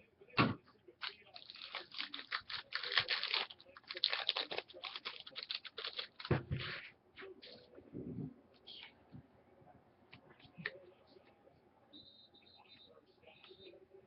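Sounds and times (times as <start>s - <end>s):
card packs clicking and crinkling: 1.0s - 6.4s.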